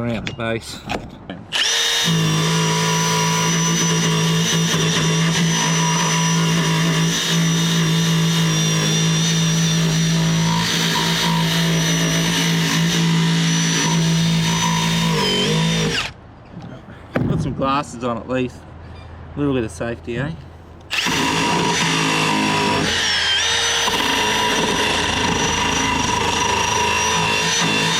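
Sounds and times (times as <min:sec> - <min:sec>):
wire brush power tool scouring metal: 0:01.6 - 0:16.0, 0:20.9 - 0:27.9.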